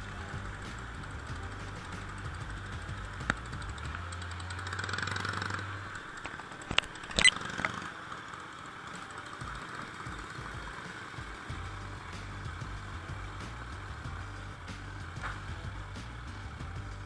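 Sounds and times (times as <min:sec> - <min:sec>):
motorcycle engines at low revs: 0:00.0 - 0:17.0.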